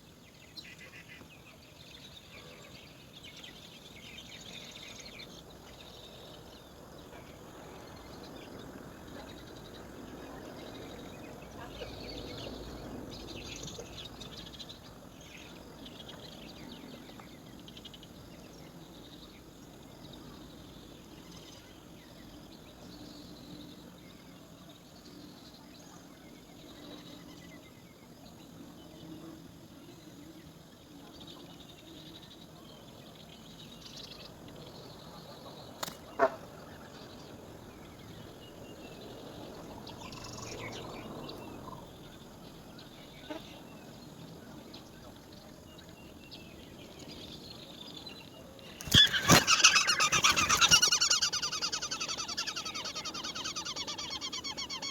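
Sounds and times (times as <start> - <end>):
high bird chirps: 48.8 - 54.9.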